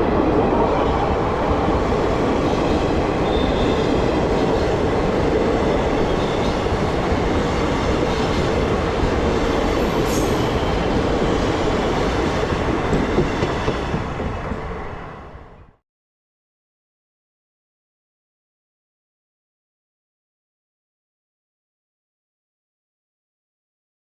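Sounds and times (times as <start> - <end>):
train wheels rumbling on rails: 0.0 - 15.8.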